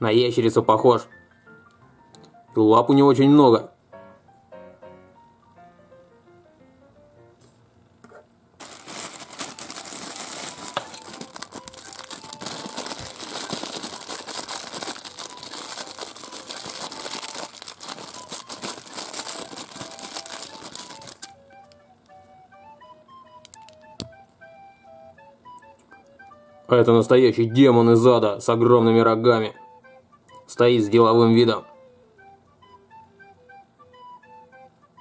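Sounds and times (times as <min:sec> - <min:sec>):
plastic bag crinkling: 0:08.6 - 0:21.4, 0:23.5 - 0:23.8.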